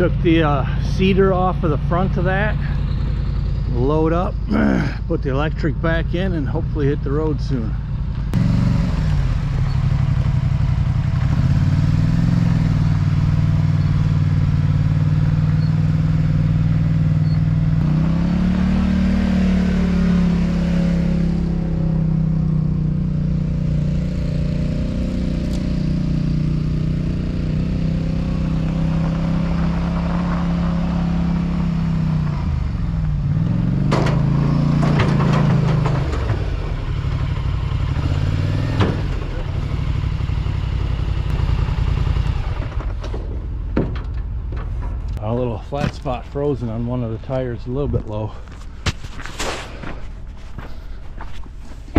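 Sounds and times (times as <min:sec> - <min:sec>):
atv engine revving: 0:00.0 - 0:47.0.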